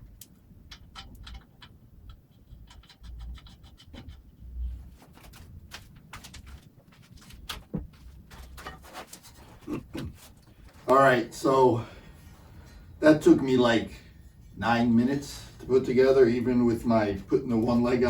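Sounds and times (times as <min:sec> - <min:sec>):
wrenches and metal parts clicking: 0:00.7 - 0:04.2.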